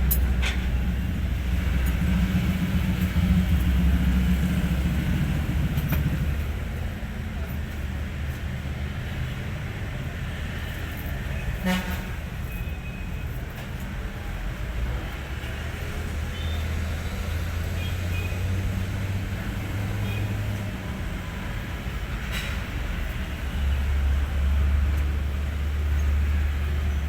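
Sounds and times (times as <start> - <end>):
diesel engine idling: 0.0 - 10.6.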